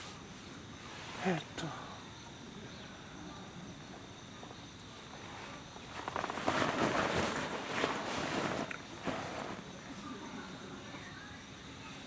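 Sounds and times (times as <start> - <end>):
insects chirring: 0.0 - 12.0
crunching rustling noise: 5.2 - 9.8.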